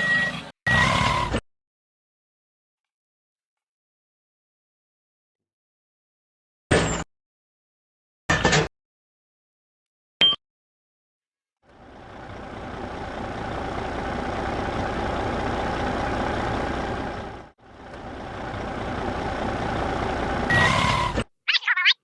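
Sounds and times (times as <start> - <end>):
vehicle engine running: 11.7 - 21.2.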